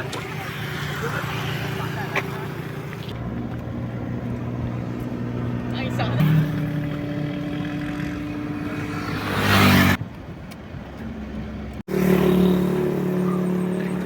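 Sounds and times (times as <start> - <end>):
engine running: 0.0 - 14.0
noisy engine surge: 3.2 - 10.0.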